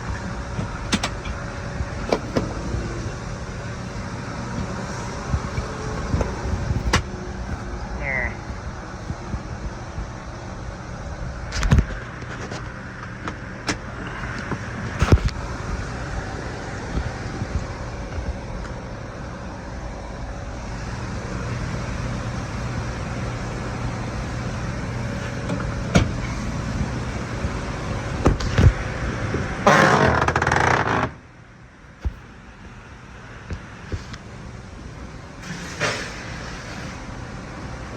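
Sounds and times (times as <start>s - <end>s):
engine idling: 0.0s - 12.6s, 13.2s - 29.7s.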